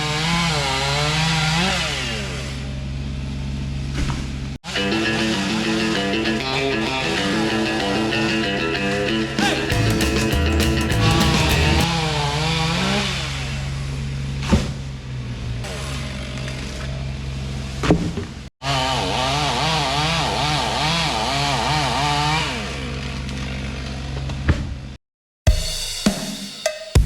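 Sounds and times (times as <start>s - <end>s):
chainsaw cutting wood: 0.0s - 2.7s, 9.7s - 13.7s, 18.6s - 24.3s.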